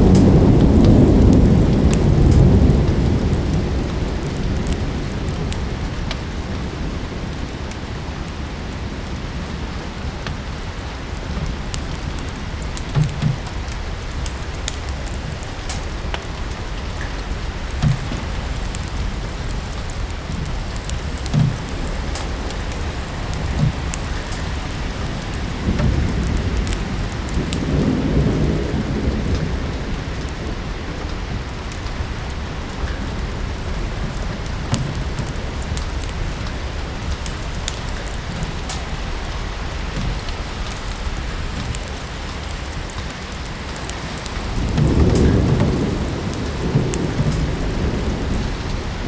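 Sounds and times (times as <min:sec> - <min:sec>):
low rumble of thunder: 0:00.0 - 0:49.0
steady rain: 0:00.0 - 0:49.0
wood fire crackling: 0:00.0 - 0:49.0
dull thumps: 0:17.7 - 0:18.8, 0:20.3 - 0:22.7.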